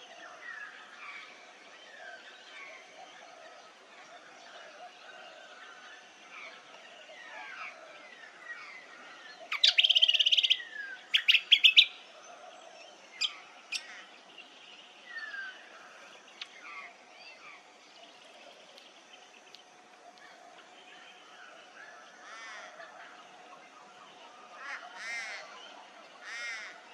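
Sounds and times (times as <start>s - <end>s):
birds singing and calling: 0.0s - 26.9s
loud rapid bird trill: 9.5s - 12.0s.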